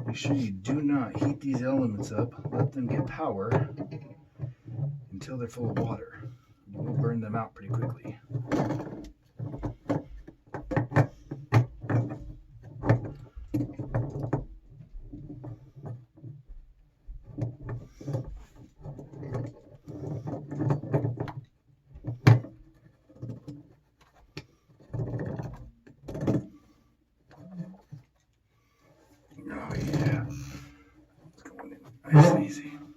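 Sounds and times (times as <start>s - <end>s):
scraping: 23.9s - 32.9s.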